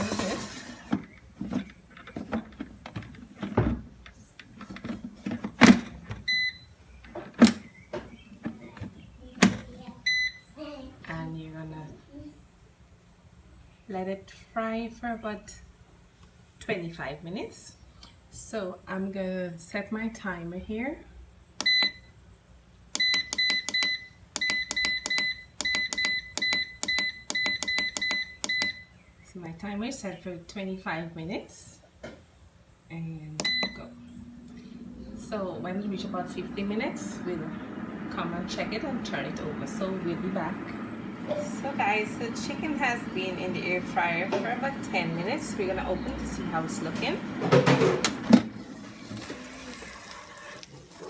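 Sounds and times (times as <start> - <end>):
short electronic beep: 33.4 - 35.1
air fryer basket clunks: 41.0 - 49.5.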